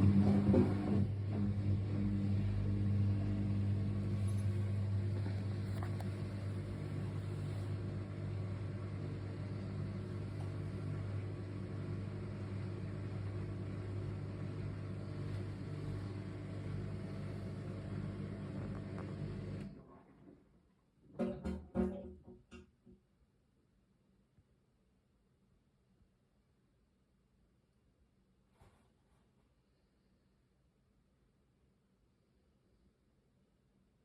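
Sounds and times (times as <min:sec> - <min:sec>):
washing machine humming: 0:00.0 - 0:19.9.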